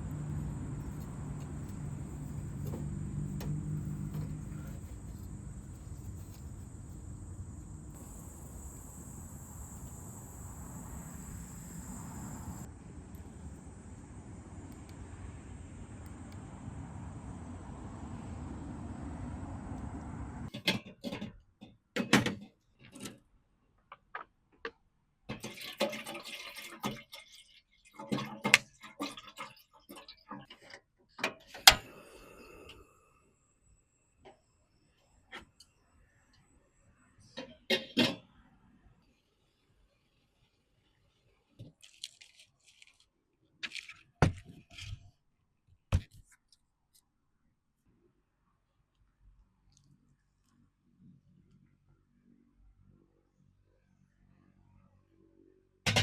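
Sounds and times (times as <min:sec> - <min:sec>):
objects being handled: 0:00.0 - 0:08.0, 0:41.6 - 0:45.0
rustling: 0:00.0 - 0:08.6
liquid-like noise: 0:00.0 - 0:18.7, 0:25.3 - 0:30.7
steady noise: 0:00.0 - 0:20.5.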